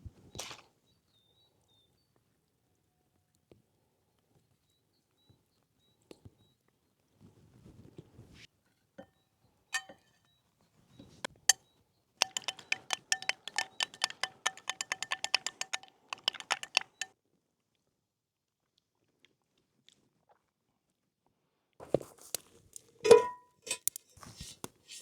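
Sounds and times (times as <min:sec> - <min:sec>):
utensil clinking against bowl: 0:09.8 - 0:10.1, 0:12.2 - 0:17.1, 0:23.0 - 0:24.0.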